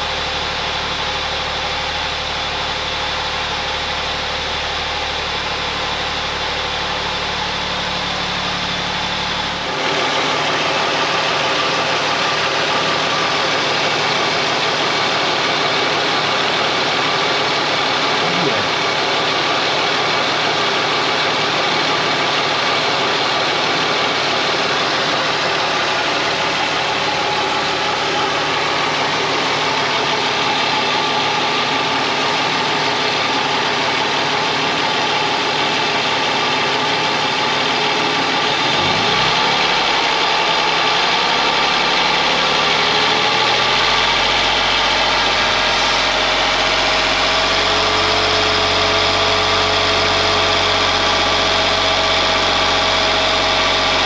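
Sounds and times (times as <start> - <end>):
car engine idling: 0.0 - 54.0
deeper steady hum: 18.1 - 19.1.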